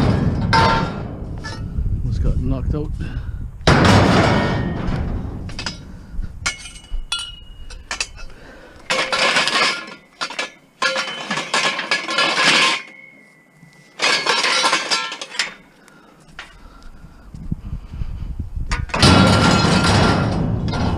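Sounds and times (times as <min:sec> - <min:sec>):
scrap metal clanking: 0:00.0 - 0:01.8, 0:03.7 - 0:16.6, 0:18.8 - 0:20.9
metal rattling and scraping: 0:00.0 - 0:02.3, 0:03.6 - 0:16.8, 0:18.7 - 0:20.9
metal clinking: 0:03.8 - 0:16.6.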